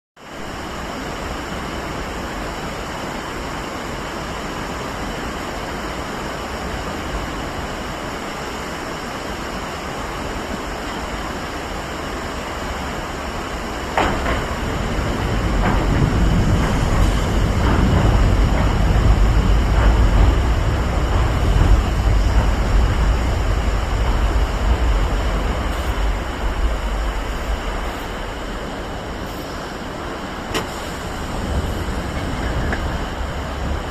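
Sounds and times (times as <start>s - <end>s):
electric train passing: 0.4s - 33.9s
wheels clicking over rail joints: 13.8s - 28.2s, 28.8s - 33.9s.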